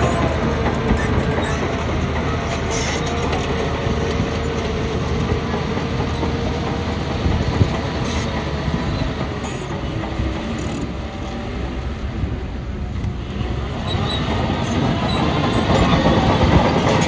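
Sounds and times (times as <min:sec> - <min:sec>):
diesel engine running: 0:00.0 - 0:17.0
machinery rattling and clanking: 0:00.0 - 0:17.0.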